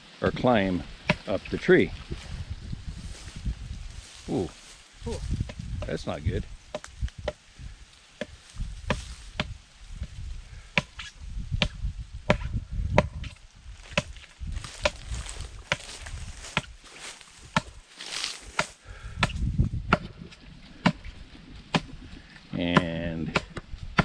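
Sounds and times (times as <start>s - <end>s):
blade chopping palm trunk: 10.8s - 14.2s, 14.8s - 15.0s, 18.5s - 20.1s, 20.8s - 21.1s, 21.7s - 21.9s, 22.7s - 24.0s.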